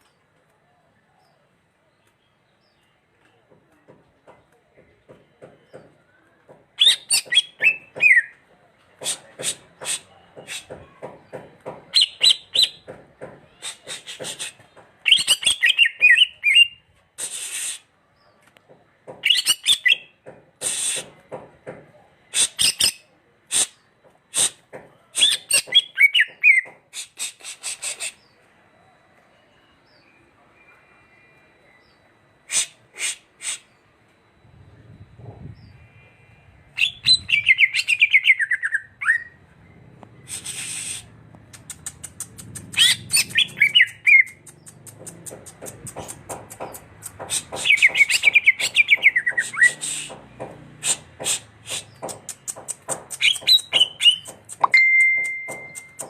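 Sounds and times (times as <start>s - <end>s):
bird singing with chattering notes: 5.1s - 16.8s, 19.1s - 26.8s, 36.7s - 56.0s.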